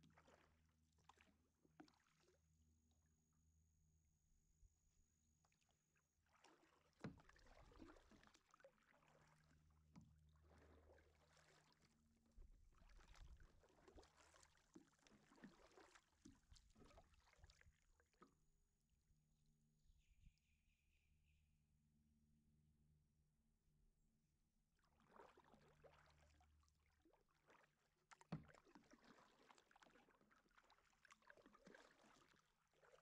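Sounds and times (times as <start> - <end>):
paddle splashing in water: 0.0 - 2.4, 6.2 - 18.5, 24.8 - 33.0.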